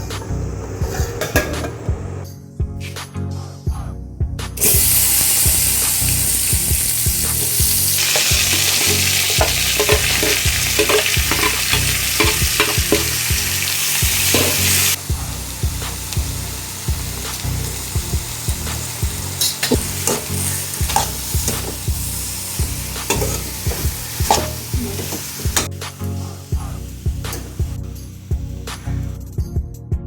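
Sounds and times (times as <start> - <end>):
food sizzling in a pan: 4.6 - 29.2
spatula scraping a pan: 7.4 - 13.3.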